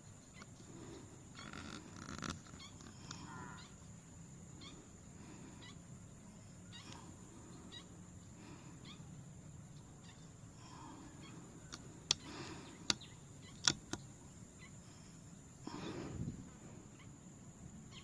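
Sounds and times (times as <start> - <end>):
faint short bird calls: 0.0 - 18.0.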